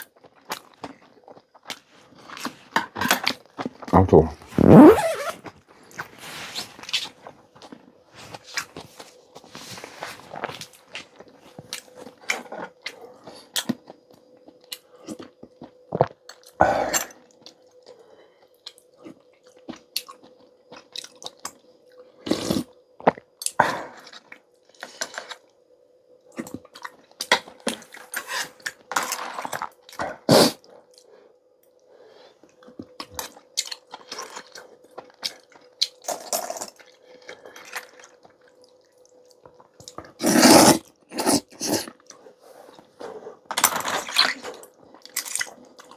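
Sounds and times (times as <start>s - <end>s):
slurping and chewing: 22.2s - 25.4s, 39.5s - 45.9s.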